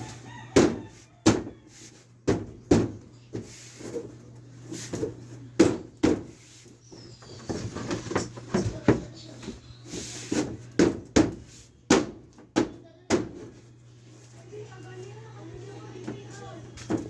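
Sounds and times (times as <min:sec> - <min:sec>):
knocks on wood: 0:05.6 - 0:06.3, 0:10.4 - 0:13.5.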